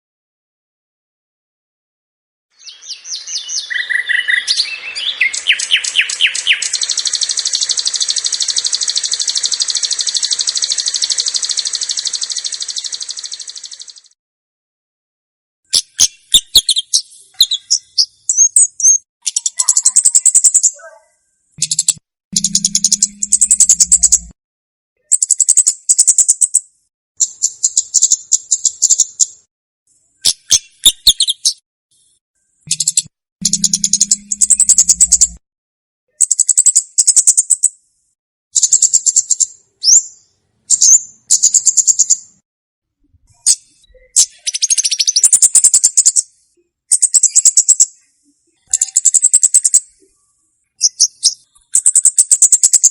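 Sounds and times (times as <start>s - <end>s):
songbird chipping: 2.6s - 14.1s, 15.7s - 20.9s, 21.6s - 24.3s, 25.0s - 26.6s, 32.7s - 35.4s, 50.8s - 52.9s
bird chirping and trilling: 2.6s - 14.2s, 15.7s - 24.4s, 25.0s - 26.6s, 27.2s - 29.3s, 30.2s - 31.6s, 32.7s - 35.4s, 36.1s - 37.7s, 38.6s - 42.2s, 43.4s - 46.3s, 46.9s - 50.1s, 50.8s - 52.9s
low hum: 22.4s - 24.4s, 33.4s - 35.4s.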